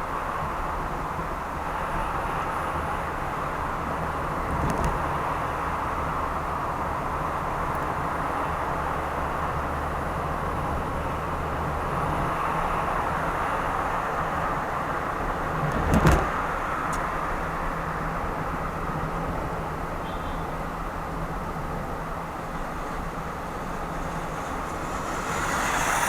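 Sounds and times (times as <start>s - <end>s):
car driving road noise: 0.0s - 26.0s
sharp thump: 15.6s - 17.0s.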